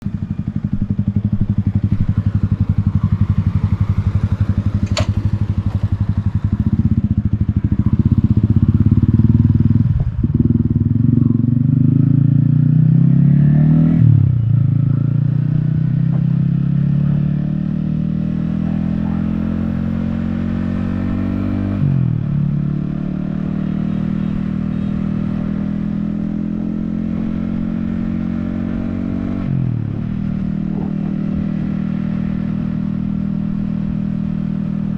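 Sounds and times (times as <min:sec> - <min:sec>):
motorcycle engine accelerating through gears: 0:00.0 - 0:34.9
sharp click: 0:04.8 - 0:05.2.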